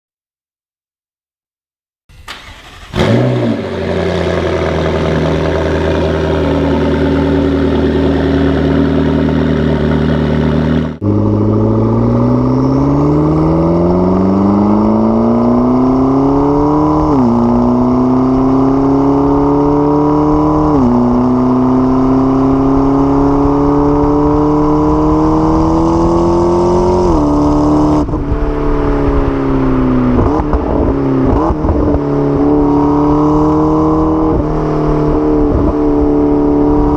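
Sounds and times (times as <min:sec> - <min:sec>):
car engine accelerating hard: 0:02.3 - 0:36.9.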